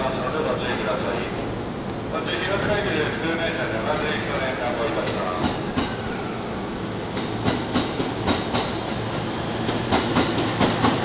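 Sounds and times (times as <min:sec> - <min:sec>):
train rumble: 0:00.0 - 0:11.0
train wheels clicking over rail joints: 0:07.1 - 0:11.0.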